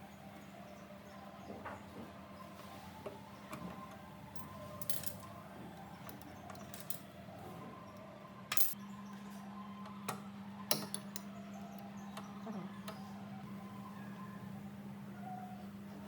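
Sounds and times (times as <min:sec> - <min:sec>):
metal tools clinking: 0:04.4 - 0:05.3, 0:06.1 - 0:07.0, 0:08.5 - 0:08.8.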